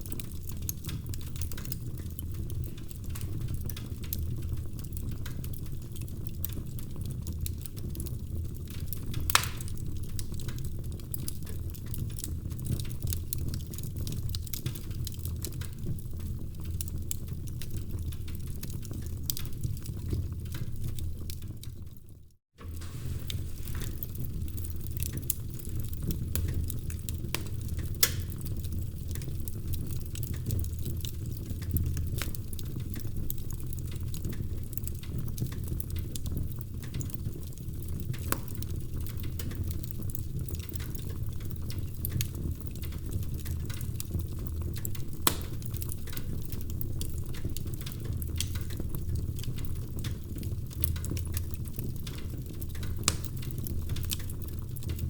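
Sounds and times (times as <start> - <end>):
low rumble of flame: 0.0 - 55.0
wood fire crackling: 0.0 - 55.0
loud pops from fire: 8.8 - 10.5, 22.6 - 33.1, 44.8 - 46.4, 52.4 - 54.1.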